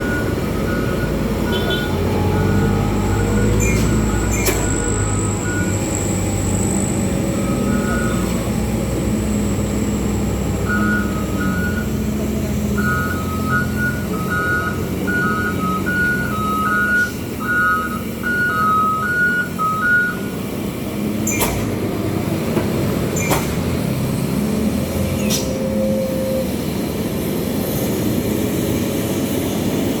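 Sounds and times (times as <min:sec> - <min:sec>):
two-note electronic beeping: 0:00.0 - 0:20.3
truck diesel engine running: 0:00.0 - 0:30.0.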